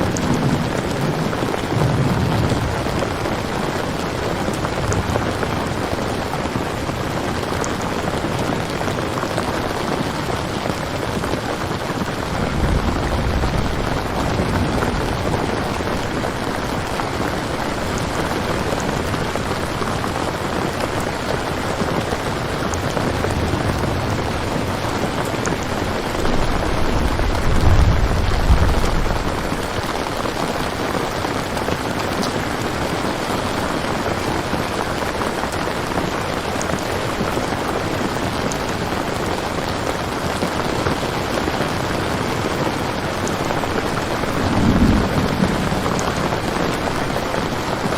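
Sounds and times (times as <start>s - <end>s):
heavy rain falling: 0.0s - 47.9s
low rumbles: 11.8s - 20.1s, 22.1s - 30.7s, 43.6s - 47.9s.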